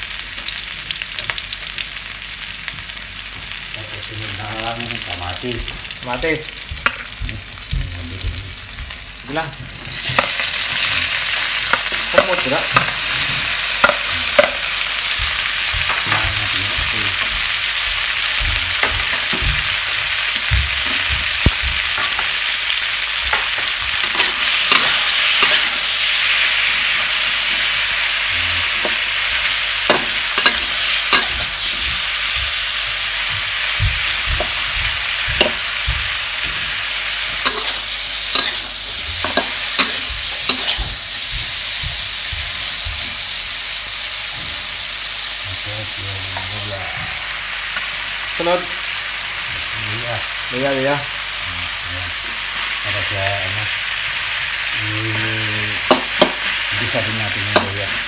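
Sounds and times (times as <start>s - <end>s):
food sizzling in hot fat: 0.0s - 58.0s
metal spatula scraping wok: 37.4s - 40.9s.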